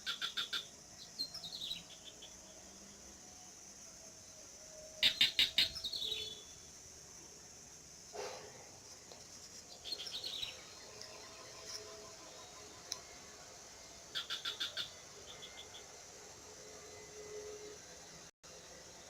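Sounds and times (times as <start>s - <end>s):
bird chirping: 0.0s - 2.7s, 5.0s - 6.7s, 9.5s - 13.2s, 14.1s - 16.0s
high-pitched background hiss: 0.0s - 19.0s.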